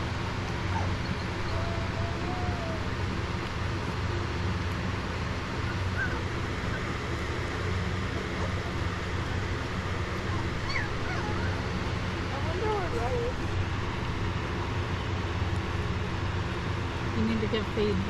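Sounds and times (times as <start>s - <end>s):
low mechanical hum: 0.0s - 18.0s
puppies squeaking: 0.4s - 2.8s, 5.5s - 7.2s, 8.2s - 11.8s.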